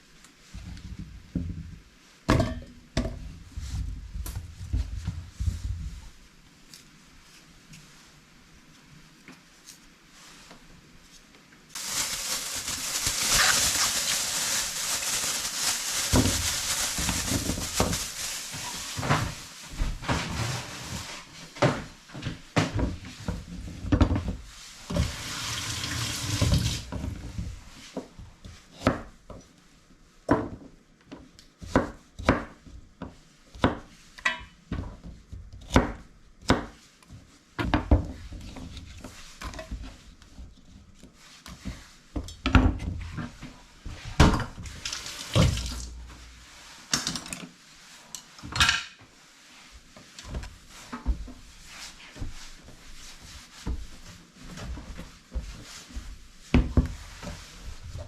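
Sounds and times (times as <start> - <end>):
clatter in sink: 44.3 - 45.9.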